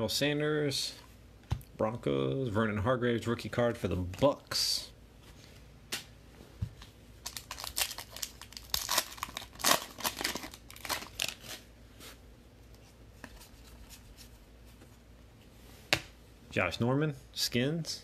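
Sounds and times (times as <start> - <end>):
handling of cards: 6.7 - 14.9
wrapper tearing and crinkling: 7.2 - 11.6.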